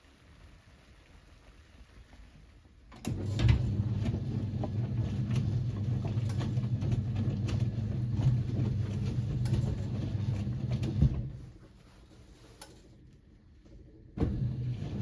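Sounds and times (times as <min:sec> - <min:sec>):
washing machine motor humming: 0:03.0 - 0:11.6, 0:14.1 - 0:15.0
clothes tumbling clicks and knocks: 0:03.5 - 0:11.5.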